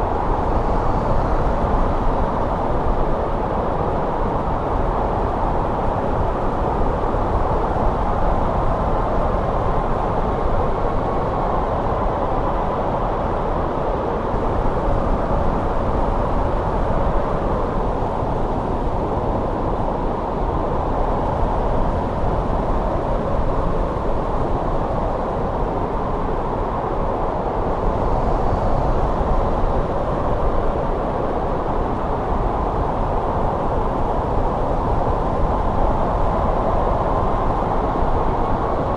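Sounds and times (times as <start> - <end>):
wind blowing with faint whistle: 0.0 - 38.9.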